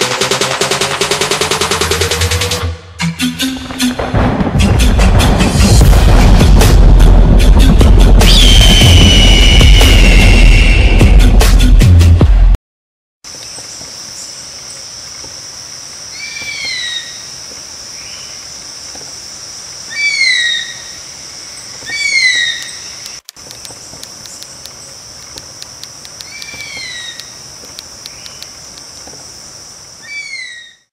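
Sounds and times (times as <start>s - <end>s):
bird descending whistle: 8.2s - 11.2s
faint rapid ticks: 23.0s - 29.2s.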